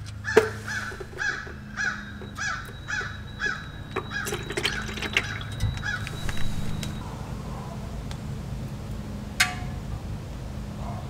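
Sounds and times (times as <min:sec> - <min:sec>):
steady low hum: 0:00.0 - 0:10.8
bird harsh calls: 0:00.2 - 0:07.0
fluid draining into bucket: 0:00.3 - 0:07.0.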